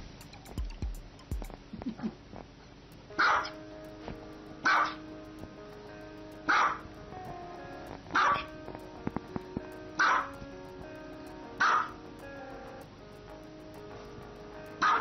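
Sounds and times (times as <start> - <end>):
background music: 0.0 - 1.7, 3.1 - 15.0
small dog barking: 3.2 - 3.6, 4.6 - 5.0, 6.5 - 6.9, 8.1 - 8.5, 10.0 - 10.3, 11.6 - 12.0, 14.8 - 15.0.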